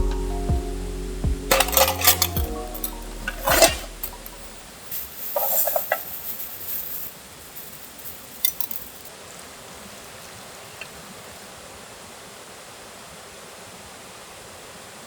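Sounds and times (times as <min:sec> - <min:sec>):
metal cookware clinking: 0:01.5 - 0:09.1
scraping rattle: 0:01.5 - 0:09.1.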